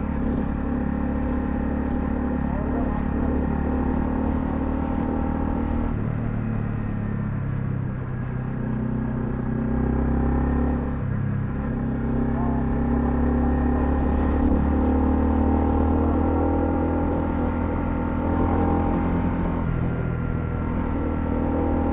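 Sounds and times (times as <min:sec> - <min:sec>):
motorcycle engine running: 0:00.0 - 0:21.9.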